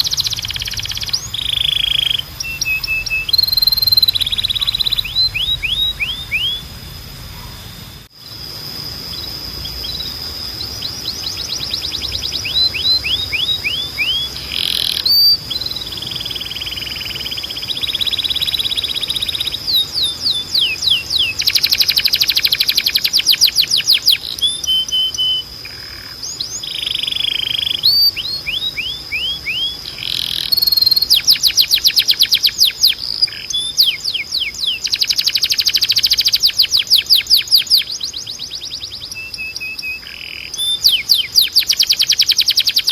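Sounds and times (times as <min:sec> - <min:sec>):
steady high tone: 0:00.0 - 0:23.3
canary singing: 0:00.0 - 0:42.9.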